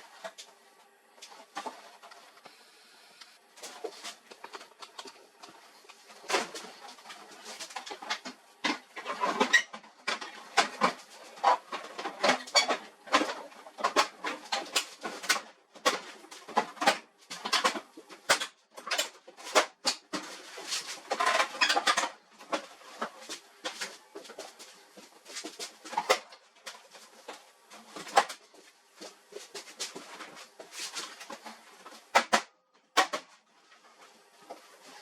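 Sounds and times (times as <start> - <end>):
hard parts clicking and knocking: 32.1 - 33.3.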